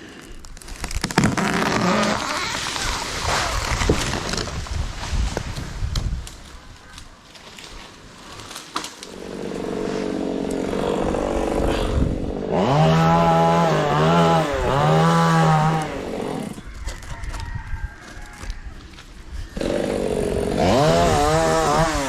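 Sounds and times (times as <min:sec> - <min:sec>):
two-stroke chainsaw revving: 0:09.1 - 0:16.6, 0:19.6 - 0:22.0.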